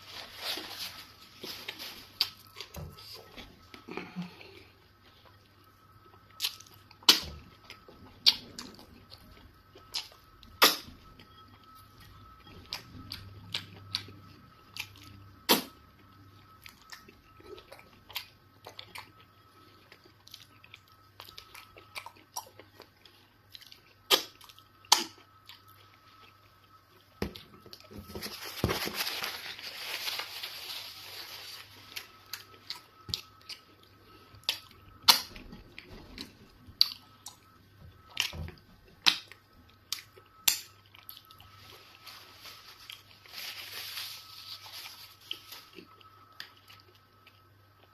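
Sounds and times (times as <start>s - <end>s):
rustling noise: 0.0s - 2.2s, 28.2s - 32.0s, 41.6s - 45.8s.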